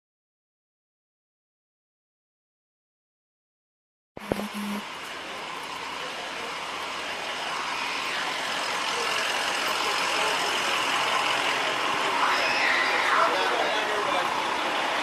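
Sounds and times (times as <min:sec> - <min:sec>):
motor vehicle running: 0:04.2 - 0:15.0.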